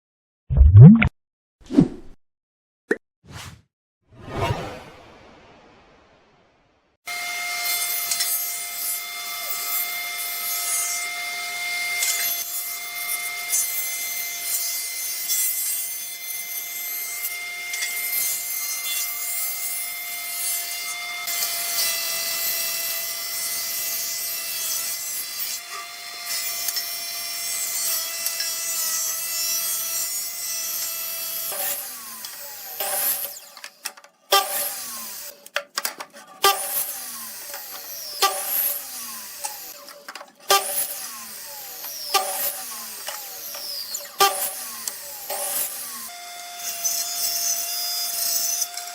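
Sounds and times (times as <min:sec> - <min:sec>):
woodworking tool motor whine: 0:30.6 - 0:35.5, 0:36.2 - 0:48.9.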